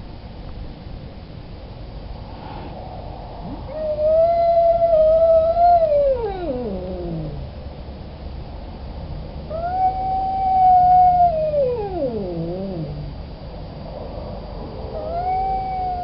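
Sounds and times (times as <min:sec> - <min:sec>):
cat yowling: 0:03.5 - 0:07.6, 0:09.5 - 0:13.1, 0:14.9 - 0:16.0.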